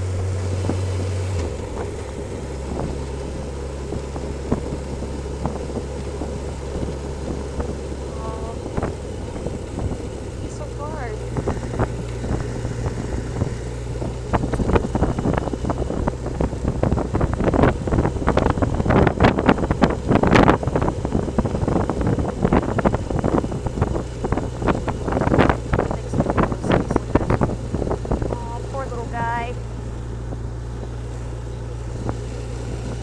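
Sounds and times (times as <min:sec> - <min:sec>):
motorcycle engine hum: 0:00.0 - 0:33.0
wind noise on microphone: 0:00.0 - 0:33.0.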